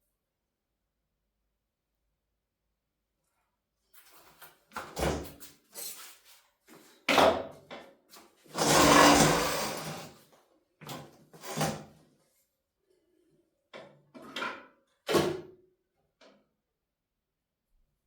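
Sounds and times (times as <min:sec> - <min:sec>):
objects knocking and scraping: 0:08.5 - 0:10.2.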